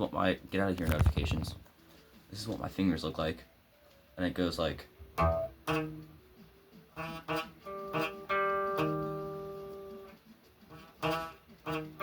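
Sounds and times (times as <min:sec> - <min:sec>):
guitar arpeggio: 0:05.1 - 0:06.2, 0:07.0 - 0:10.1, 0:10.7 - 0:12.0
guitar strum: 0:05.1 - 0:06.2, 0:06.9 - 0:10.1, 0:10.7 - 0:12.0.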